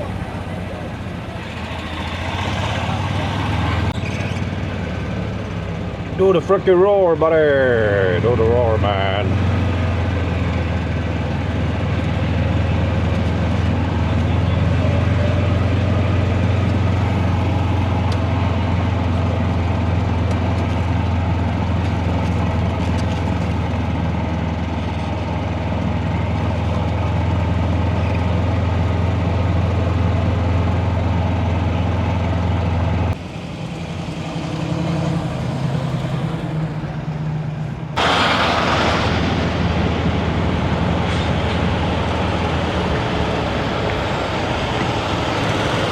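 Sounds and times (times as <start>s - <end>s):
diesel truck engine droning: 0.0s - 45.9s
loud hissing burst: 38.0s - 41.6s.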